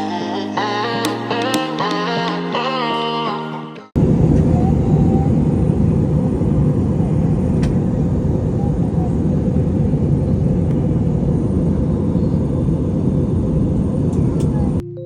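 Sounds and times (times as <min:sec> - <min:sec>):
moving vehicle rumble: 0:04.0 - 0:14.8.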